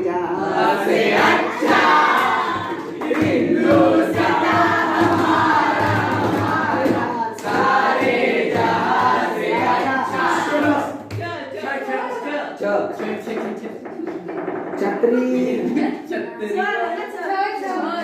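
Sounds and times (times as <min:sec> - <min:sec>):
group singing: 0:00.0 - 0:13.7.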